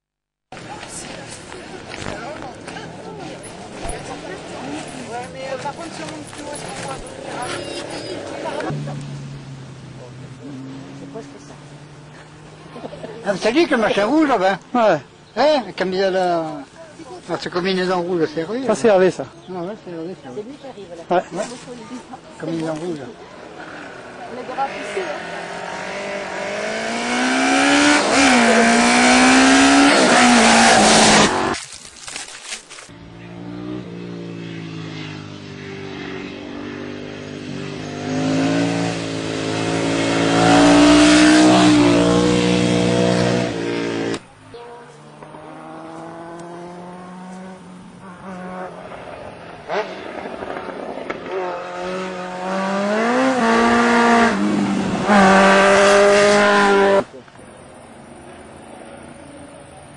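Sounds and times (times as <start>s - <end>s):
motorcycle accelerating hard: 5.8s - 14.1s, 23.4s - 31.6s, 33.0s - 44.3s, 45.0s - 57.2s.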